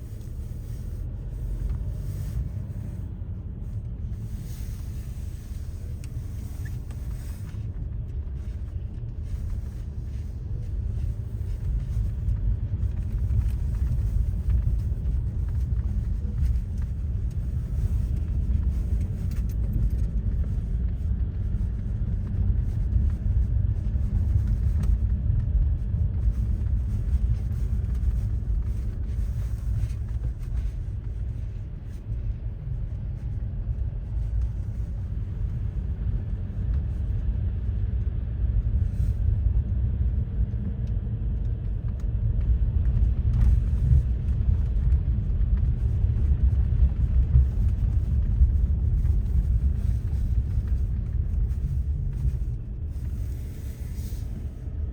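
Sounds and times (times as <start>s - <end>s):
motor vehicle rumbling: 0.0s - 54.9s.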